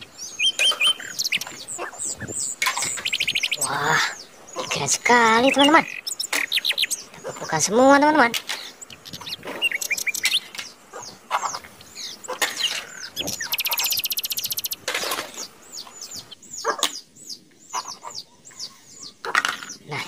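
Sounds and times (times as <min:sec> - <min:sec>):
small birds chirping: 0:00.0 - 0:20.0
toy cars knocking and scraping: 0:19.3 - 0:19.8.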